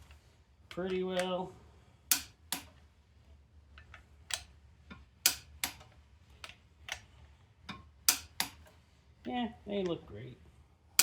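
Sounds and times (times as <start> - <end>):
torque wrench clicking: 2.1 - 2.7.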